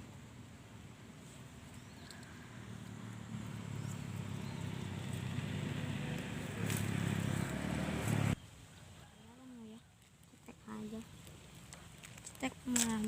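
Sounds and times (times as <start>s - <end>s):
passing vehicle engine rumble: 1.8s - 8.4s.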